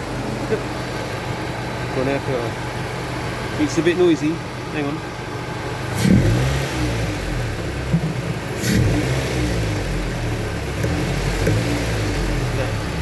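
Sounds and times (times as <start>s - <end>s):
car engine running: 0.0s - 13.0s
engine intake noise: 5.7s - 13.0s.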